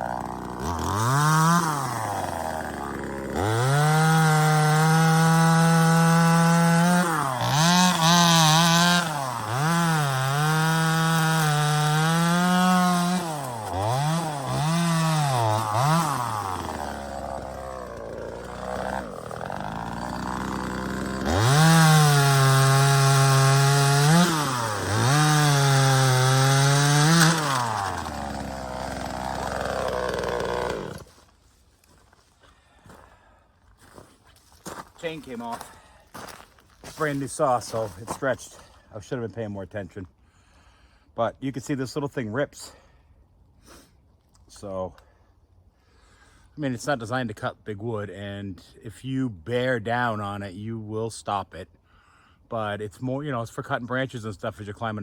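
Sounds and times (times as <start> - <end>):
chainsaw cutting wood: 0.0 - 31.4.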